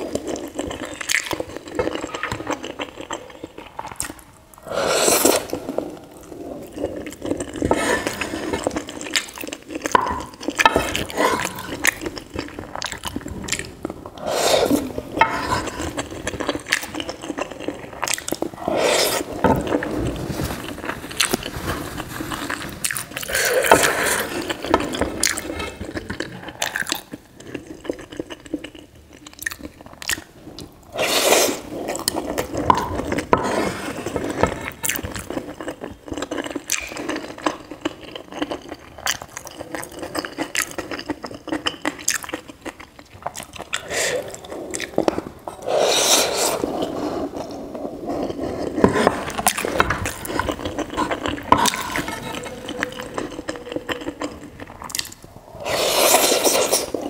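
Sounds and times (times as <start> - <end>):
chewing with wet mouth clicks: 8.6 - 13.7, 24.4 - 30.7, 34.8 - 45.2, 49.4 - 55.3
wooden spatula scraping a pan: 48.2 - 53.1.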